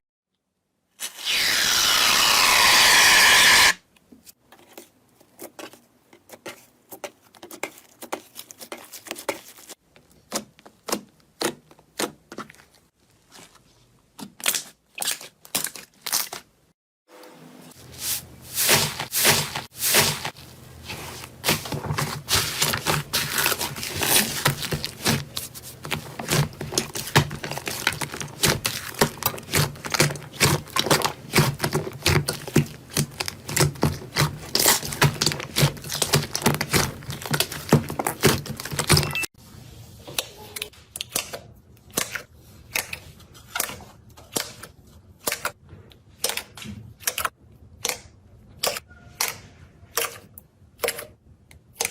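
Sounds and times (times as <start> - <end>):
slime crackling and popping: 21.4 - 39.0.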